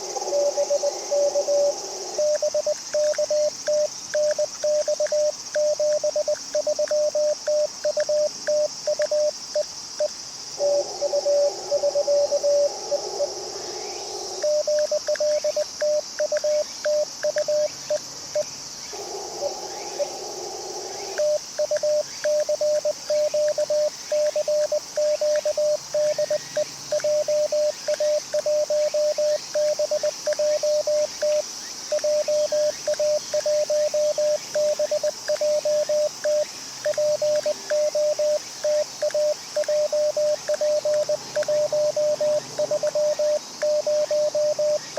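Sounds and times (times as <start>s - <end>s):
morse code tone: 1.2s - 9.3s, 14.4s - 17.7s, 21.2s - 44.9s.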